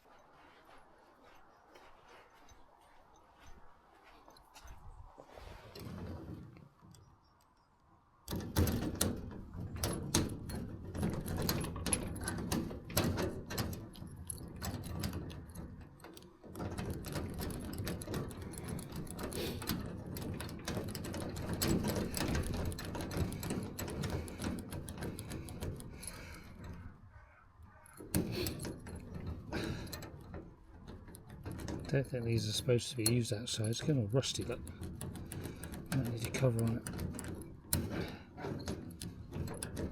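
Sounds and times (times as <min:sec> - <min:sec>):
metallic mechanism clicking and rattling: 0:08.3 - 0:39.9.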